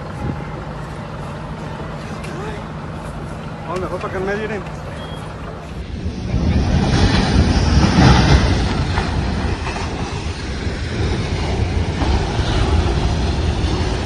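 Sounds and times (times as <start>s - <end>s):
ocean surf roaring: 5.8s - 14.0s.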